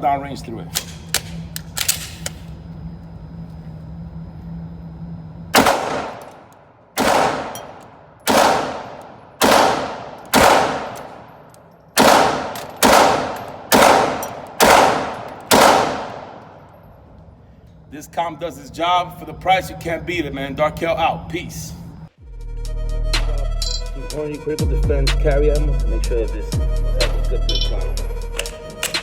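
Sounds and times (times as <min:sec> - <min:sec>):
gun handling clicks: 0:00.7 - 0:02.6, 0:05.6 - 0:17.8, 0:27.6 - 0:29.0
pistol shots with echo: 0:05.6 - 0:16.8.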